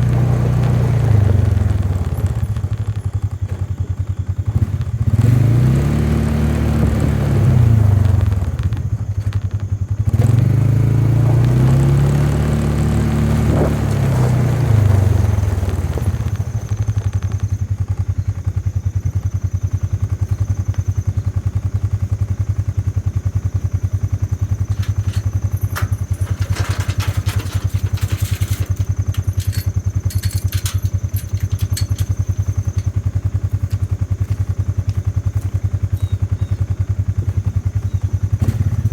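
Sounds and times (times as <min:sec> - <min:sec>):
vehicle engine running: 0:00.0 - 0:38.9
clatters and knocks: 0:24.6 - 0:35.6.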